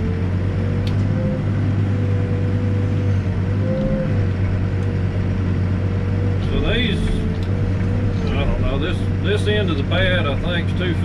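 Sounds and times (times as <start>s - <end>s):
backhoe diesel engine running: 0.0s - 11.0s.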